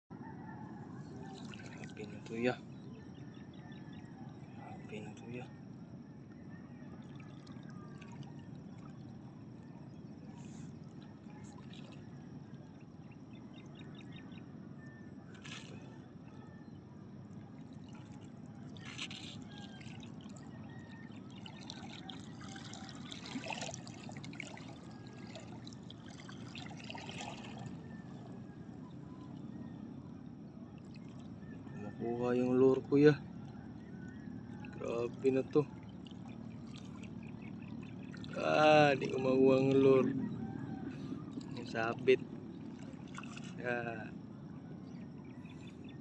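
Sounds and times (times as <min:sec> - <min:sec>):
water lapping against boat: 0:00.2 - 0:46.0
brief splashes: 0:15.3 - 0:15.9, 0:17.7 - 0:20.4, 0:21.4 - 0:28.2.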